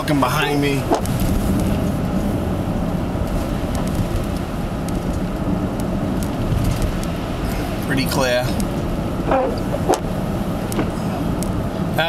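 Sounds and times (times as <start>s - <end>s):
car cabin road noise: 0.0s - 12.0s.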